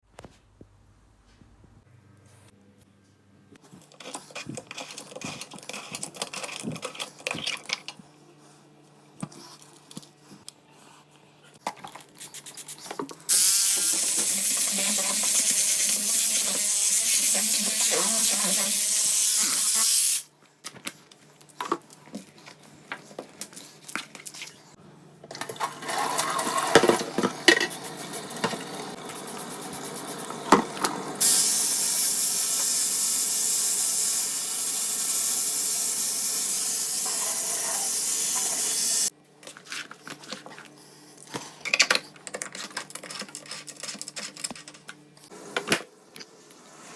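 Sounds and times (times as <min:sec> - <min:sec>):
water running: 0:13.3 - 0:19.9, 0:25.4 - 0:39.1.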